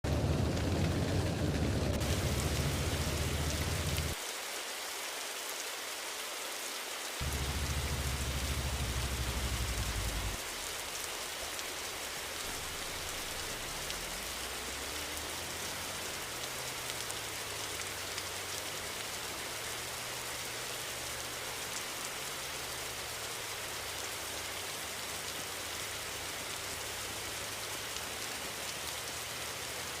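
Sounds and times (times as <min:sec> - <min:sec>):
loud low rumble: 0:00.0 - 0:04.2, 0:07.2 - 0:10.8
rain falling on a surface: 0:00.0 - 0:30.0.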